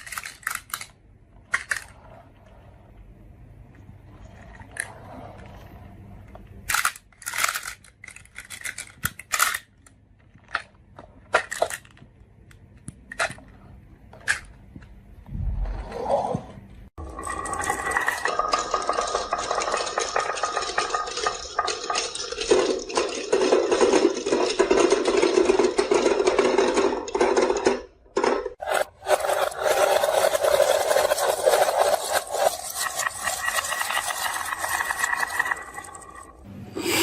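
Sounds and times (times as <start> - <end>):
marbles rattling down a run: 17.0 - 27.6, 28.6 - 36.4.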